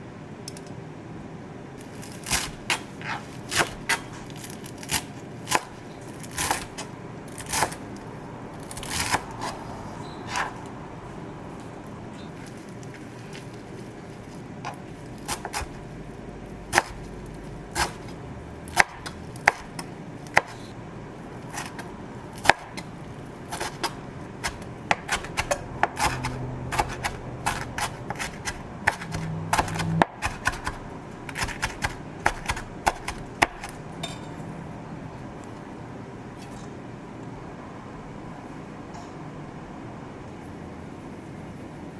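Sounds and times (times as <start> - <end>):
low hum: 7.0 - 23.4.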